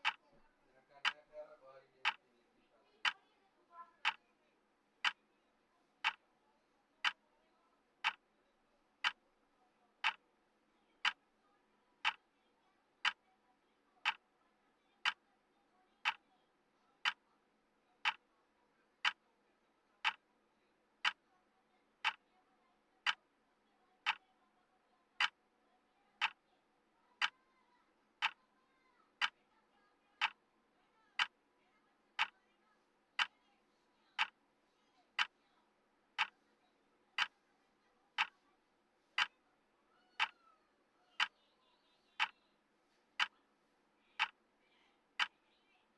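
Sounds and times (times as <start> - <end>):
clock ticking: 0.0 - 0.2, 1.0 - 1.3, 2.0 - 2.2, 4.0 - 4.2, 6.0 - 6.2, 8.0 - 8.2, 9.0 - 9.2, 10.0 - 10.2, 11.0 - 11.2, 13.0 - 13.2, 14.0 - 14.2, 15.0 - 15.2, 16.0 - 16.2, 17.0 - 17.2, 18.0 - 18.2, 19.0 - 19.2, 20.0 - 20.2, 21.0 - 21.2, 22.0 - 22.2, 23.0 - 23.2, 24.0 - 24.2, 25.1 - 25.4, 26.2 - 26.4, 27.2 - 27.4, 28.2 - 28.4, 29.2 - 29.4, 30.2 - 30.4, 31.2 - 31.4, 32.2 - 32.4, 33.2 - 33.4, 34.2 - 34.4, 35.2 - 35.4, 36.2 - 36.4, 37.2 - 37.4, 38.2 - 38.4, 40.2 - 40.4, 44.2 - 44.4.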